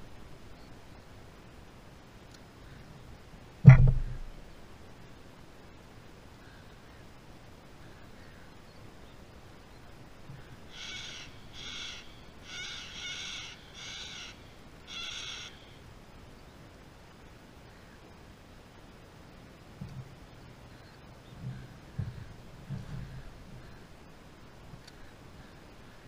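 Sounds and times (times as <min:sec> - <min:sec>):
bird calling: 0:10.4 - 0:15.8.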